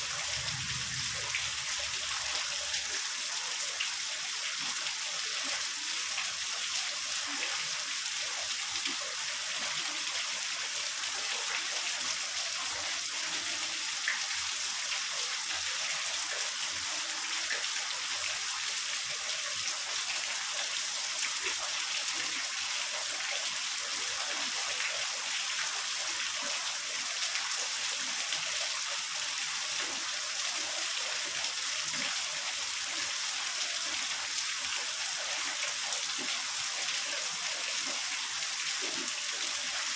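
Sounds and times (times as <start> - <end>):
heavy rain hissing: 0.0 - 2.8.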